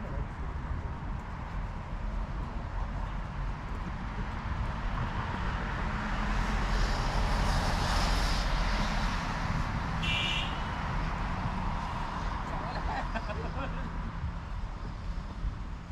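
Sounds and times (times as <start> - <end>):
vehicle passing: 3.8 - 15.9.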